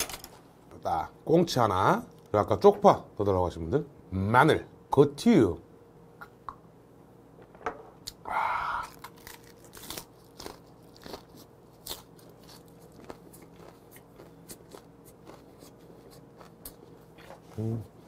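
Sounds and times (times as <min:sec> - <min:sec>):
crunchy chewing: 0:08.8 - 0:18.0.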